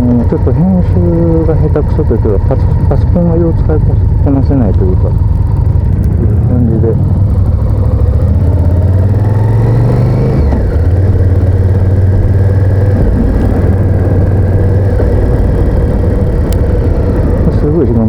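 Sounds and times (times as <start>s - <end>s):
motorcycle engine running: 0.0s - 18.0s
wind noise: 5.1s - 18.0s.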